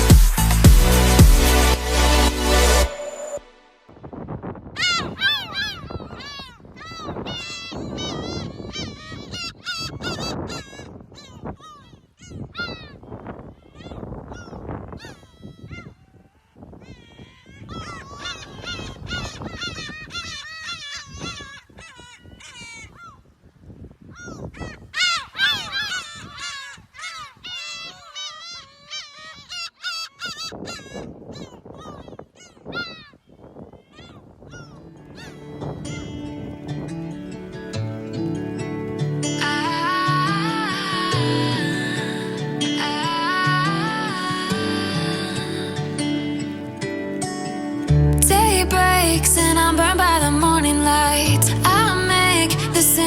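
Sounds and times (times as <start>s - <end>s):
rough low noise: 0.0s - 4.0s, 34.9s - 53.0s
birds honking calls: 34.6s - 53.0s.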